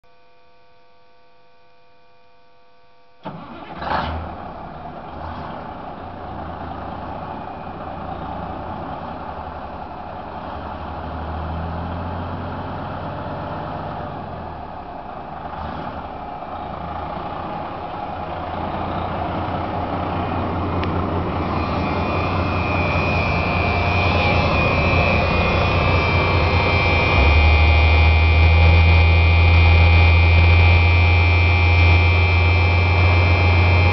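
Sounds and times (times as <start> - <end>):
diesel truck engine starting: 3.2 - 33.9
high whine: 14.1 - 33.9.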